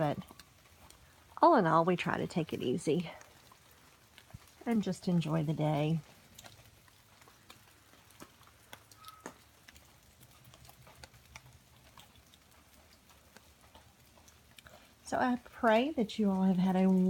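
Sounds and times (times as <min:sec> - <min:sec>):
rainwater dripping: 0:00.0 - 0:17.0.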